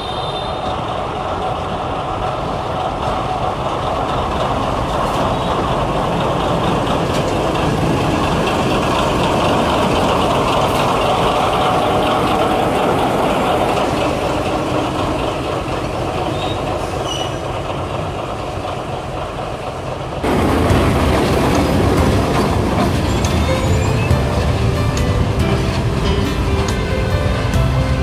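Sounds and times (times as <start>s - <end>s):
train rolling on rails: 0.0s - 28.0s
music: 20.3s - 28.0s.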